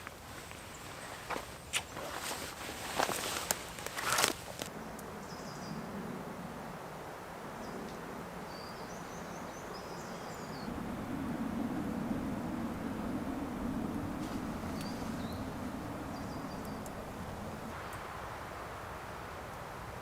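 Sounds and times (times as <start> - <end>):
leaves rustling: 0.0 - 4.8, 10.7 - 20.0
low steady hum: 10.5 - 19.6
high bird chirps: 13.0 - 17.7.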